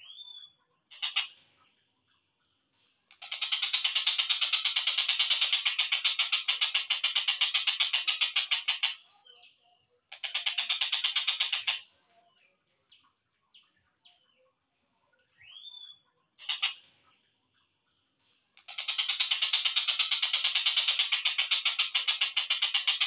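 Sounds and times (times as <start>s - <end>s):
faint bird chirps: 0.0s - 6.6s, 7.3s - 23.0s
kingfisher rattling call: 0.9s - 1.4s, 3.1s - 9.0s, 10.1s - 11.8s, 16.4s - 16.8s, 18.6s - 23.0s.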